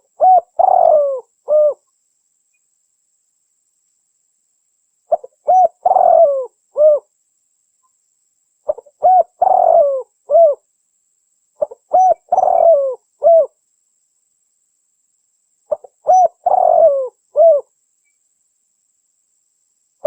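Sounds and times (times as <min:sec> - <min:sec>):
dove cooing: 0:00.0 - 0:01.8, 0:05.1 - 0:07.1, 0:08.7 - 0:10.6, 0:11.6 - 0:13.5, 0:15.7 - 0:17.7.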